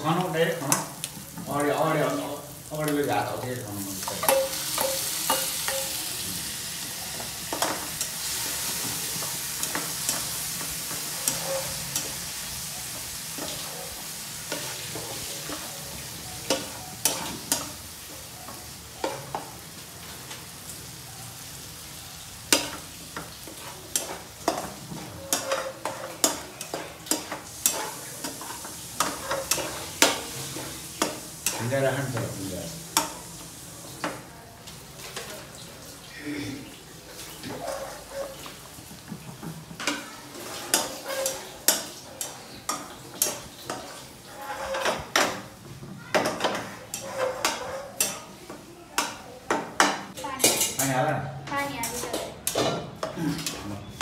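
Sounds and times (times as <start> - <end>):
tomatoes sizzling in hot oil: 0.0 - 54.0
spatula scraping a wok: 7.4 - 18.0, 22.5 - 32.4, 37.1 - 38.8, 39.8 - 45.6, 46.2 - 48.4.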